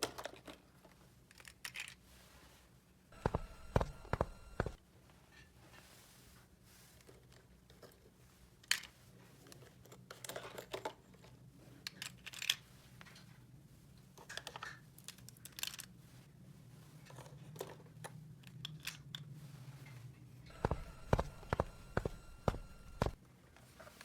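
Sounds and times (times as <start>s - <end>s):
plastic toy pieces clicking: 1.3s - 2.0s
low steady hum: 3.2s - 4.8s, 20.5s - 23.2s.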